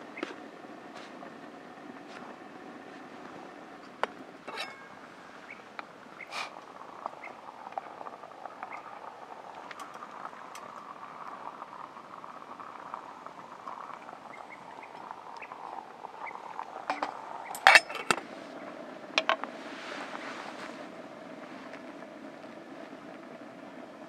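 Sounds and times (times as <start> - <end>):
steady soft hiss: 0.0 - 24.0
small ticks: 5.5 - 9.0, 9.6 - 11.0.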